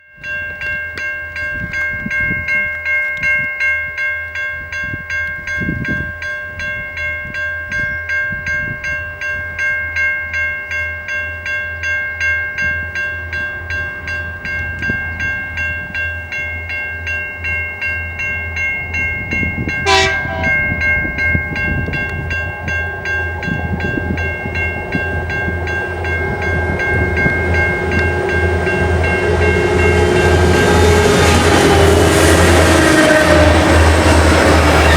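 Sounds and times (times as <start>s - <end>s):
diesel train approaching: 12.1s - 34.9s
pulsing high ringing: 12.2s - 34.9s.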